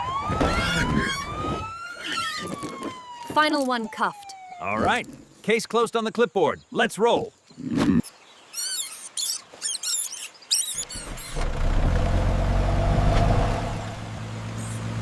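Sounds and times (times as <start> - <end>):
monkey chattering: 8.5 - 11.4
vehicle engine starting and running: 11.0 - 15.0.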